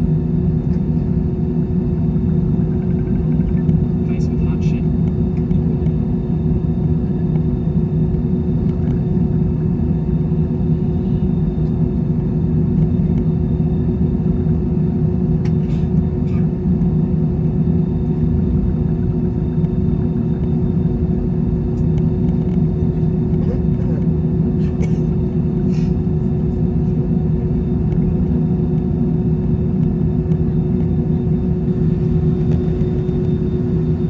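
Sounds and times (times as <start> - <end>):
aircraft cabin drone: 0.0 - 34.0.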